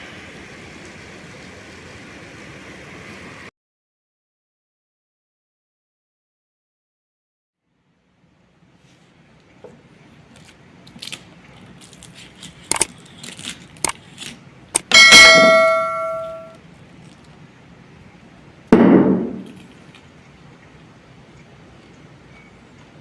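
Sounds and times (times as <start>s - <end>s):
metal object clanging: 14.8s - 16.6s
dull thump: 18.8s - 19.6s.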